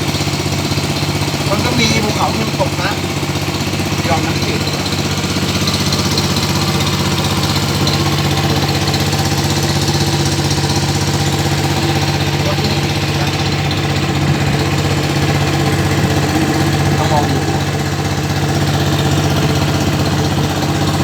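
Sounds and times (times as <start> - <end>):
boat engine chugging: 0.0 - 21.0.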